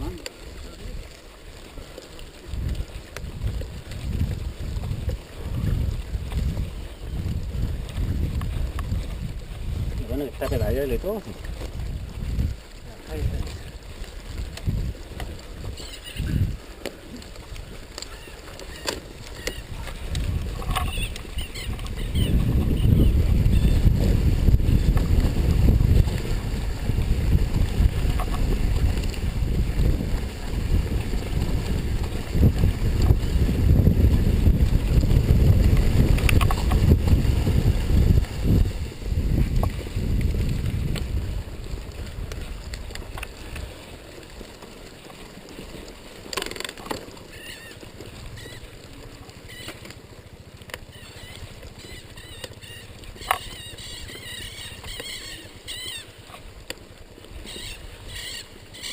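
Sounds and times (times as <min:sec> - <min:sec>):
wind buffeting microphone: 0:00.0 - 0:44.4
mountain bike rumbling on dirt: 0:00.0 - 0:55.7.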